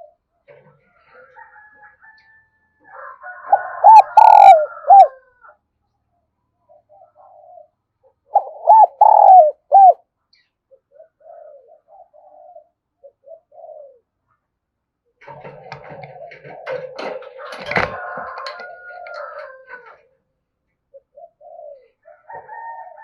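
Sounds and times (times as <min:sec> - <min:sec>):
dove cooing: 0:02.9 - 0:05.3, 0:06.7 - 0:10.0, 0:10.7 - 0:14.2, 0:15.2 - 0:20.0, 0:20.9 - 0:23.0.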